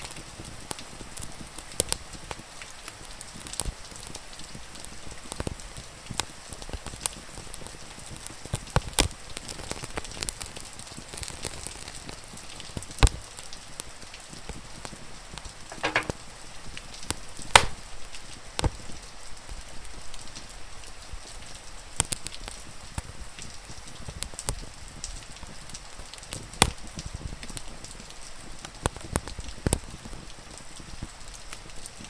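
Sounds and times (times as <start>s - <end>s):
rain hiss: 0.0s - 32.0s
wood fire crackling: 0.0s - 32.0s.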